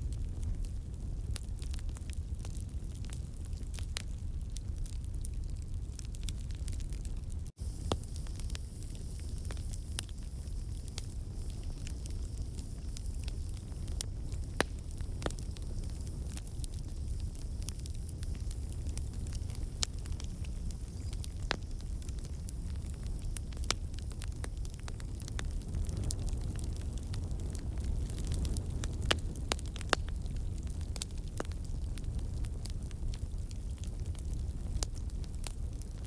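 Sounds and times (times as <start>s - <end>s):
logs crackling and popping: 0.0s - 36.0s
low rumble of flame: 0.0s - 36.0s
faint high hiss: 7.6s - 16.3s.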